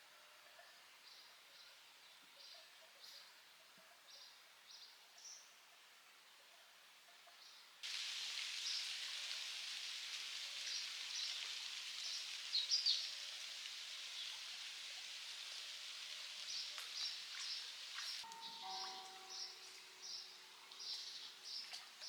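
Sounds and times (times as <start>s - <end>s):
steady outdoor hiss: 0.0s - 22.0s
birds chirping: 7.9s - 22.0s.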